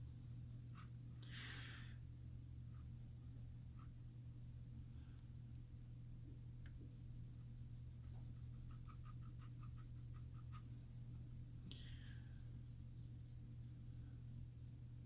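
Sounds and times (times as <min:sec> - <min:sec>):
cotton pad rubbing on screen: 0:07.0 - 0:11.5.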